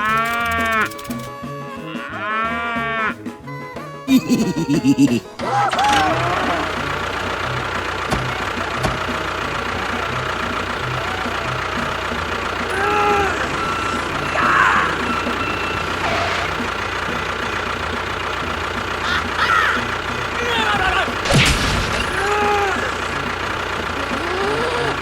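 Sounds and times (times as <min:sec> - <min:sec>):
small motor running: 0:00.0 - 0:01.4, 0:05.6 - 0:19.0.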